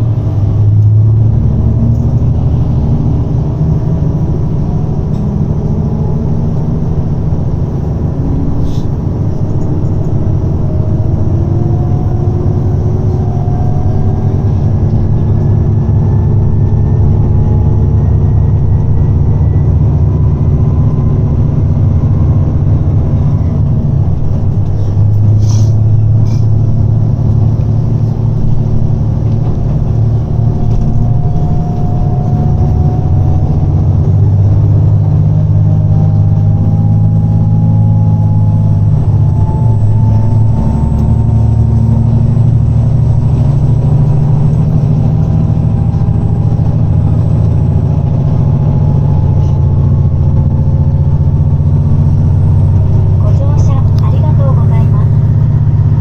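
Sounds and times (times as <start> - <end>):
diesel railcar engine droning: 0.0 - 56.0.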